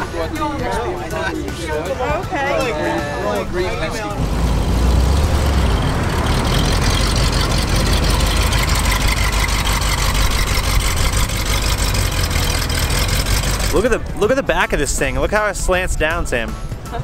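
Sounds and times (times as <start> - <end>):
car engine pulling away: 3.4 - 14.2.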